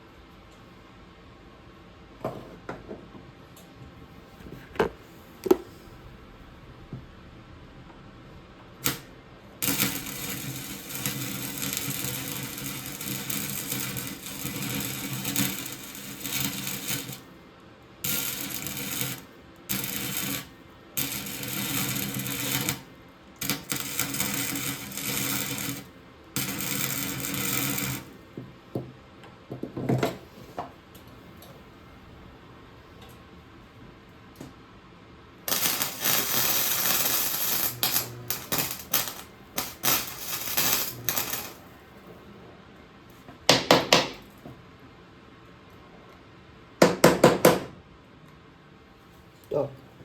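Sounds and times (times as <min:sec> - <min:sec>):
electric welder arc crackling: 0:08.7 - 0:17.4, 0:18.0 - 0:28.2, 0:35.4 - 0:41.8.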